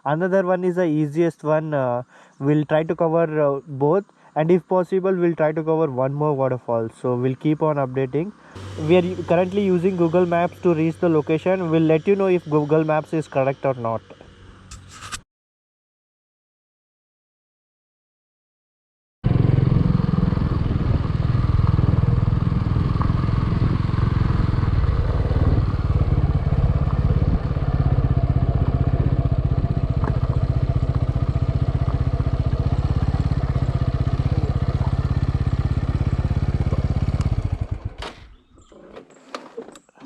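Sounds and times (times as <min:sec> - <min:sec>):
vehicle engine running: 0:07.8 - 0:14.8, 0:19.2 - 0:38.0.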